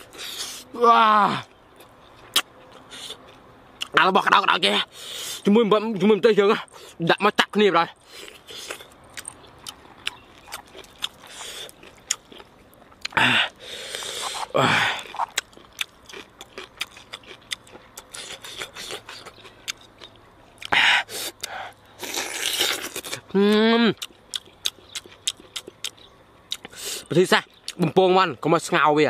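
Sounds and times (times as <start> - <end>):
crunching chewing: 1.7 - 4.0, 8.0 - 28.0
loud noisy breaths: 4.9 - 5.5, 13.2 - 15.0.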